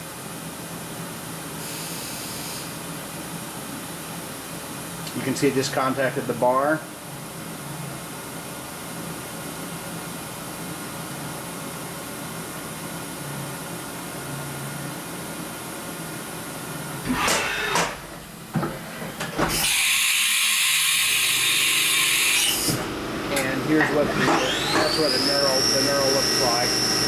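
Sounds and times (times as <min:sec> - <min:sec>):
milling machine running: 0:17.1 - 0:27.0.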